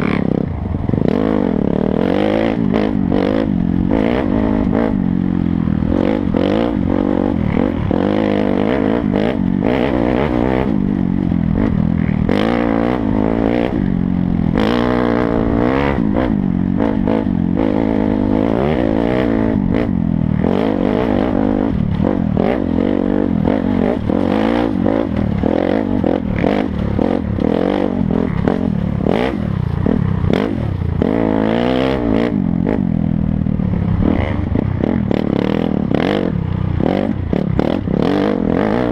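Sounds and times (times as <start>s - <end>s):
dirt bike engine revving: 0.0s - 38.9s
bike rattling over rough ground: 1.8s - 31.5s.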